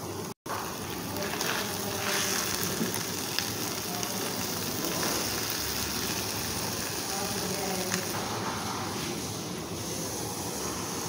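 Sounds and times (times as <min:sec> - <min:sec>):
fish frying in a pan: 0:00.0 - 0:11.0.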